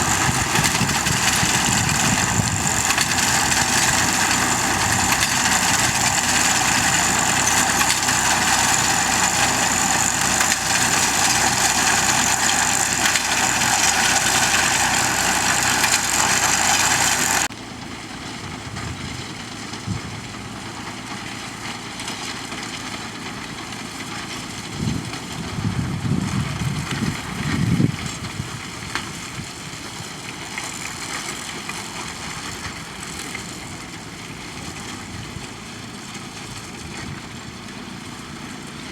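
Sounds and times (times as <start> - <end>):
binder working: 0.0 - 17.5
tractor engine running: 0.0 - 38.9.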